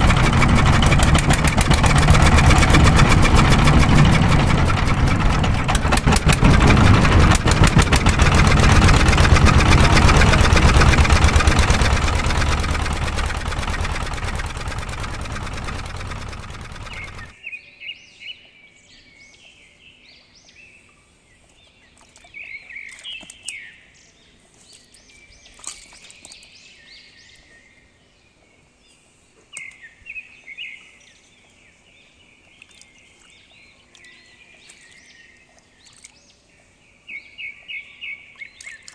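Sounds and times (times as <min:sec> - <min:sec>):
birds chirping: 0:00.0 - 0:17.3
small engine running: 0:00.0 - 0:17.3.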